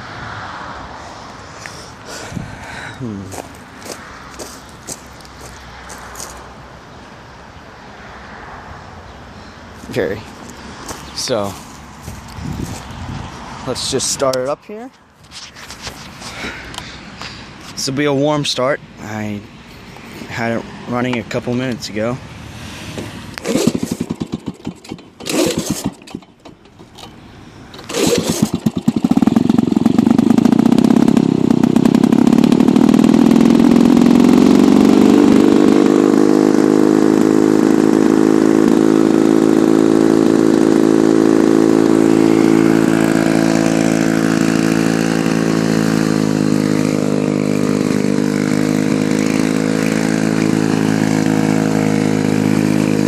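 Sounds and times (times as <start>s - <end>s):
lawn mower engine pull-started: 22.6s - 53.0s.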